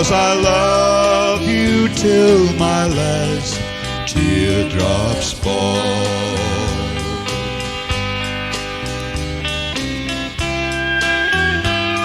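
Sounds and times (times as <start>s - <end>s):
country band playing: 0.0s - 12.0s
pedal steel guitar: 0.0s - 12.0s.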